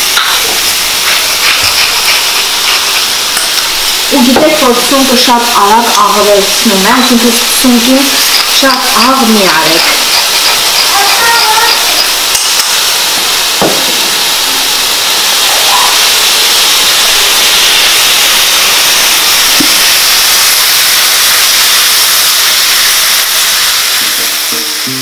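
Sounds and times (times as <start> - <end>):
vegetables sizzling in a skillet: 0.0 - 25.0.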